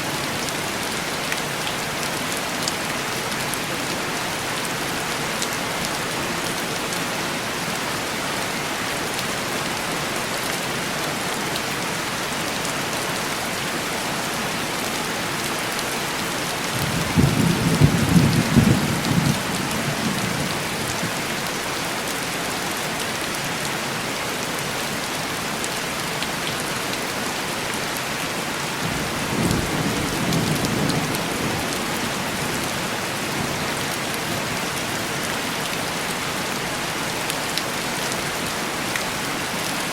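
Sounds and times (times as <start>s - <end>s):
heavy rain on window glass: 13.8s - 24.0s, 24.6s - 39.1s.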